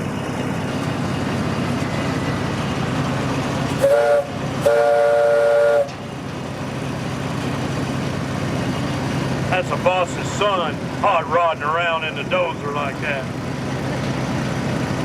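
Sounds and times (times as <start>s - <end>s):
train rumble and rail clatter: 0.0s - 15.0s
train horn: 3.8s - 6.0s.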